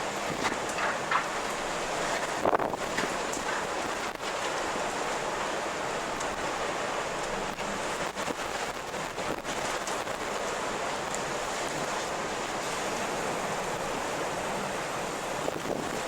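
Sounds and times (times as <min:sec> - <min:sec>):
strong wind blowing: 0:00.0 - 0:04.2, 0:13.2 - 0:16.0.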